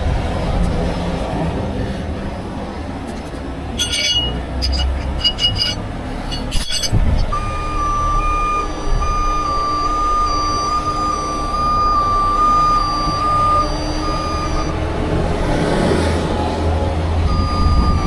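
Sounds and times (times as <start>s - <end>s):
low diesel engine rumble: 0.0s - 18.0s
metallic clinks and clanks: 3.1s - 7.3s
truck reversing alarm beeping: 3.8s - 18.0s.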